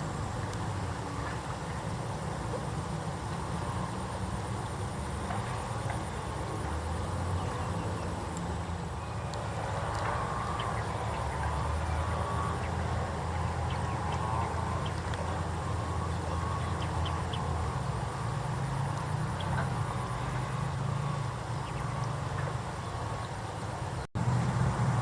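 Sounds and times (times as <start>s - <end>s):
birds chirping: 7.2s - 18.0s, 18.6s - 24.0s.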